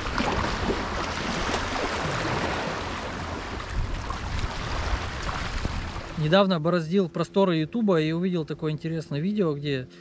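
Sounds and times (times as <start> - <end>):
river water rushing: 0.0 - 6.2
wind buffeting microphone: 0.0 - 6.2.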